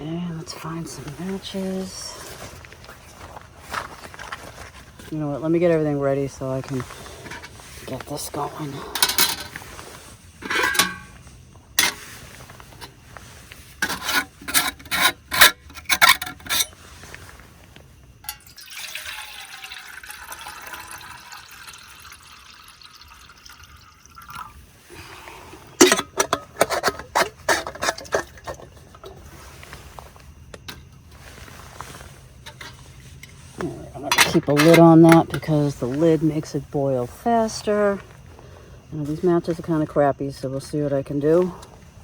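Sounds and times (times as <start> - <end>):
cookware clinking and knocking: 8.9 - 9.6, 10.4 - 11.2, 18.2 - 18.6, 25.8 - 28.7
water pouring into a pot: 18.3 - 24.6.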